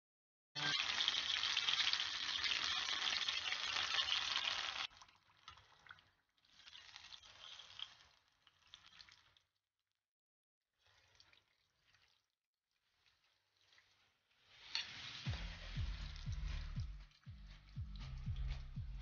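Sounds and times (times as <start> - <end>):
fish sizzling in hot oil: 0.6 - 4.9, 6.6 - 8.0, 14.3 - 16.6.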